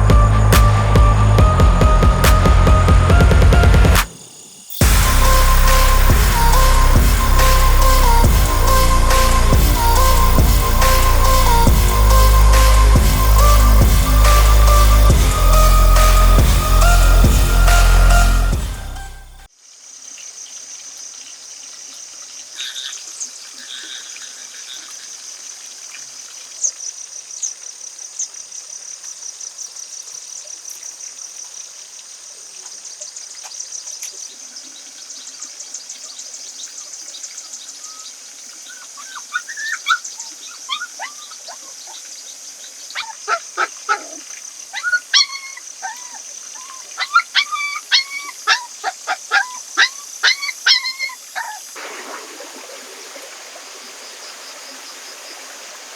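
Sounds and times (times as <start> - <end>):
pulsing insect trill: 0.0 - 21.6.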